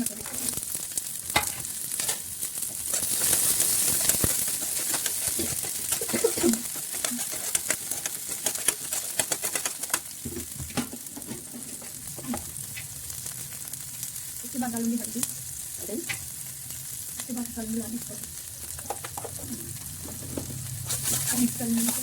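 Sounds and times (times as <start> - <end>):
vegetables sizzling in oil: 0.0 - 22.0
spoon scraping a pan: 1.3 - 9.7, 10.7 - 12.9, 18.7 - 22.0.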